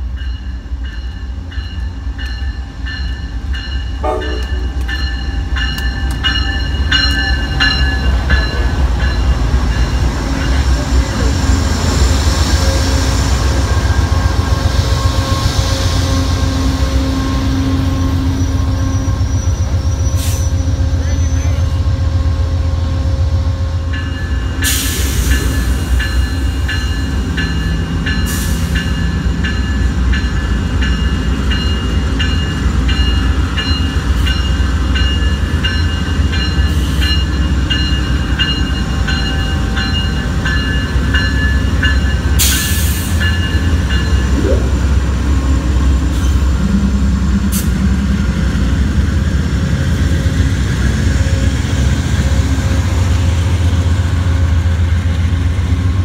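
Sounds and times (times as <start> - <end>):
locomotive bell ringing: 0.0 - 11.4, 23.8 - 47.9
diesel locomotive engines rumbling: 0.0 - 56.0.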